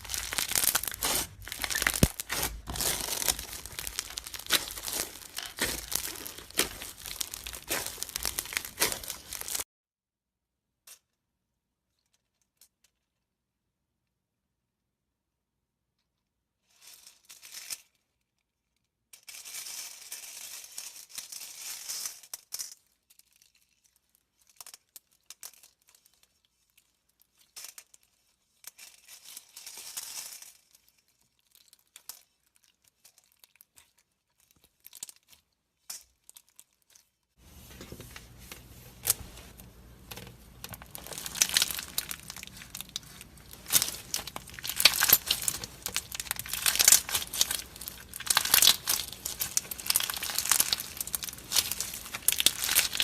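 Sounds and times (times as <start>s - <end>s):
slime crackling and crinkling: 0.0s - 9.7s, 23.3s - 53.0s.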